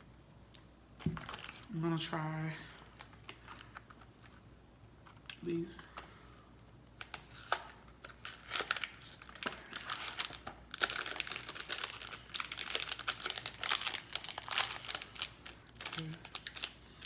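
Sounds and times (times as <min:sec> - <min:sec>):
plastic packaging crinkling: 0:01.0 - 0:02.1, 0:02.7 - 0:04.4, 0:06.9 - 0:17.0.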